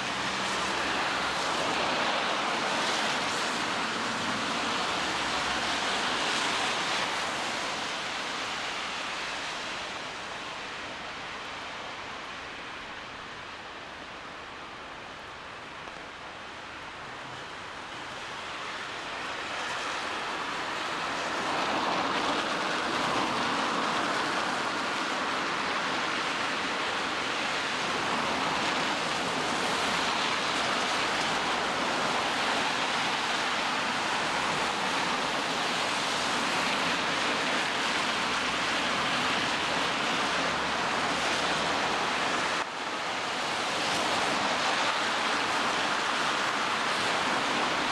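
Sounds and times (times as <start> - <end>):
rain on wet street: 0.0 - 47.9
traffic wash: 0.0 - 47.9.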